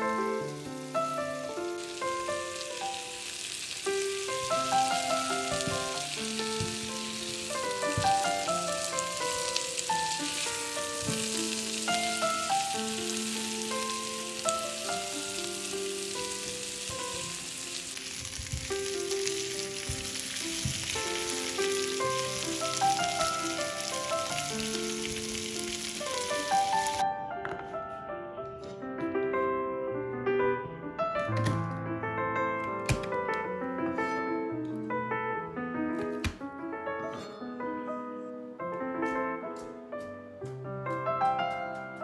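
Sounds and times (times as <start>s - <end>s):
vegetables sizzling in oil: 0.0s - 27.0s
piano music: 0.0s - 42.0s.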